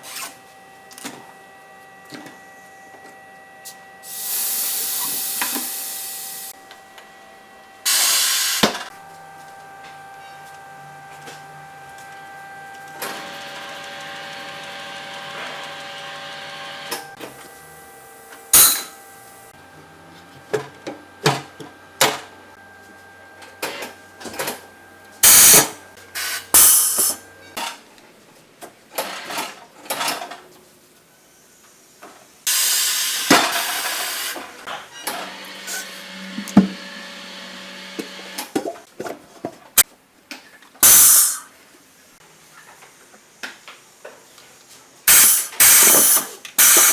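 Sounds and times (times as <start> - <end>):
compressed air hissing: 4.1 - 6.5, 40.8 - 41.5
tools knocking and clanking: 36.4 - 36.8.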